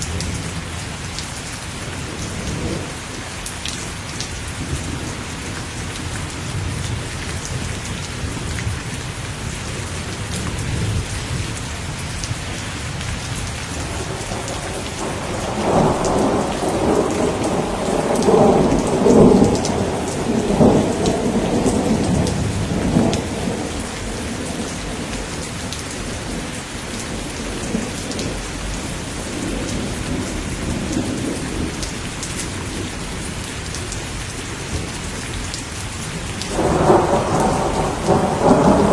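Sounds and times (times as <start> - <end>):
heavy rain hissing: 0.0 - 38.9
rolling thunder: 10.1 - 33.2, 36.4 - 38.9.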